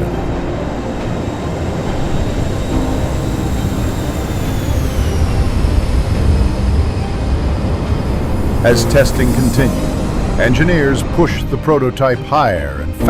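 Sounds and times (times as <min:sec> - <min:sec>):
jet engine roar with turbine whine: 0:00.0 - 0:12.8.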